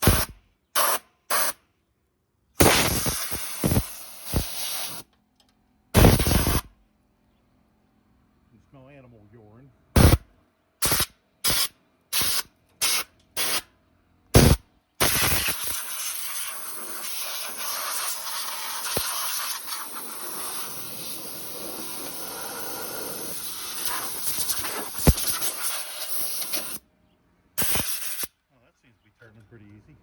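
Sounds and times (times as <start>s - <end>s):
compressed air blasts: 0.0s - 1.6s, 2.6s - 5.1s, 6.0s - 6.7s, 10.0s - 13.7s, 14.4s - 26.8s, 27.6s - 28.3s.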